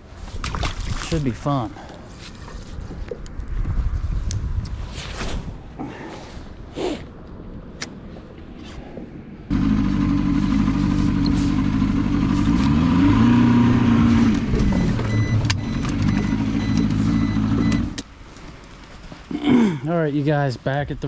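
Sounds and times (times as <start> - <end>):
motor engine revving: 9.5 - 18.0.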